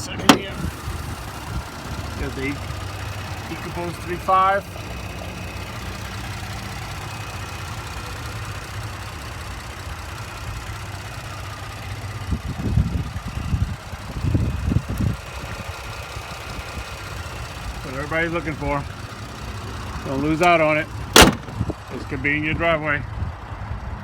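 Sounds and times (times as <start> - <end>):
car engine idling: 0.0 - 24.0
low thumps: 21.0 - 21.8.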